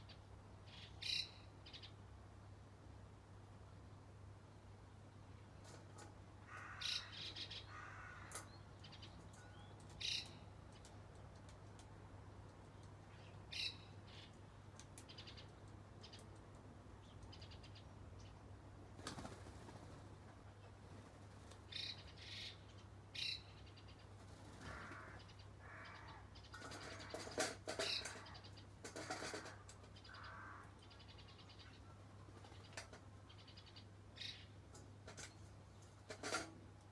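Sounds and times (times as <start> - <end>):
small birds chirping: 0.0 - 2.0, 6.5 - 11.9, 12.5 - 18.6, 21.4 - 36.2.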